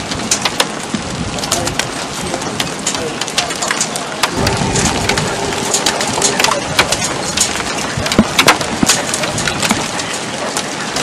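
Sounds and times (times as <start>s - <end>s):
rain drops hitting microphone: 0.0s - 11.0s
rain hiss: 0.0s - 11.0s
wind: 0.0s - 11.0s.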